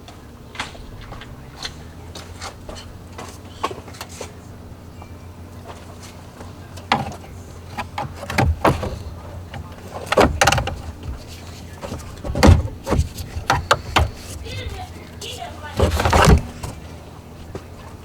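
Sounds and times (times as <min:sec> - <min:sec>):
steady low hum: 0:00.0 - 0:18.0
tools knocking and clunking: 0:05.7 - 0:17.8.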